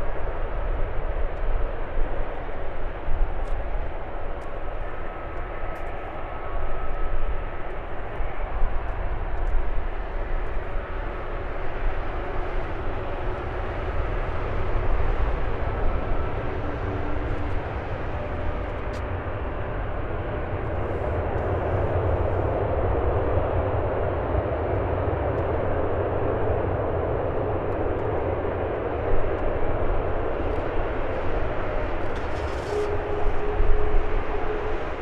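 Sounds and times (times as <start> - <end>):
jet engine rumble: 0.0 - 35.0
whining engine tones: 28.9 - 35.0.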